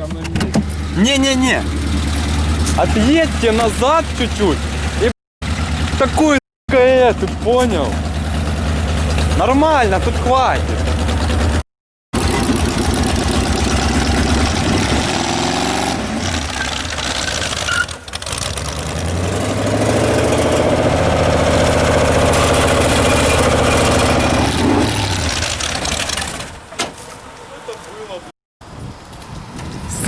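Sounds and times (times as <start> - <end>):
car engine revving hard: 12.2 - 17.6, 18.2 - 26.0.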